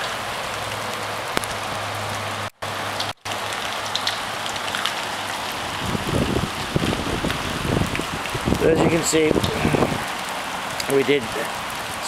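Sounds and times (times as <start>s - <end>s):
rain pattering on a roof: 0.0s - 12.0s
rumbling on the microphone: 8.5s - 10.0s.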